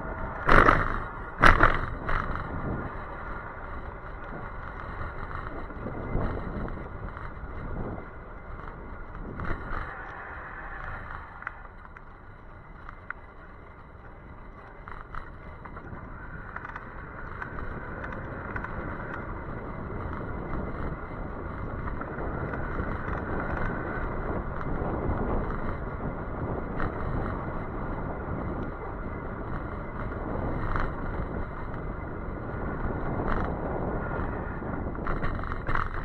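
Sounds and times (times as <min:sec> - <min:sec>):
bike tyre noise: 0:00.0 - 0:36.0
rushing wind: 0:00.0 - 0:36.0
faint clicks: 0:00.1 - 0:25.8.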